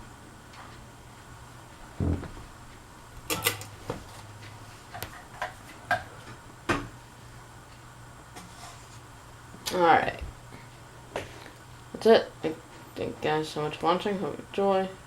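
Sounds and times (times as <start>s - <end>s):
ceiling fan humming: 0.0s - 15.0s
dull thump: 2.0s - 2.5s.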